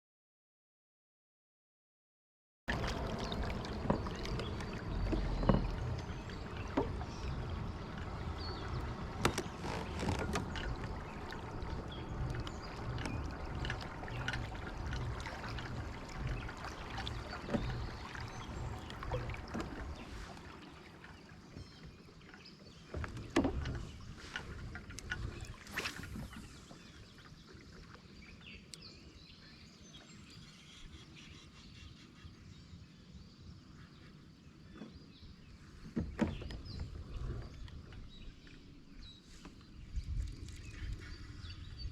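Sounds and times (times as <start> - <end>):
steady low rumble: 2.7 - 20.5
lapping water: 2.7 - 21.7
knocks and clicks against hull: 2.7 - 28.1, 34.7 - 41.9.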